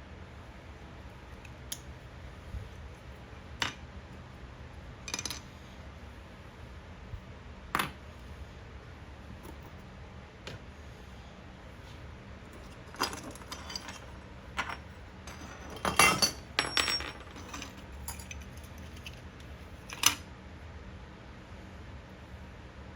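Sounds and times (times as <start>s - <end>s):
low steady hum: 0.0s - 22.9s
small hard parts clinking: 12.6s - 19.2s.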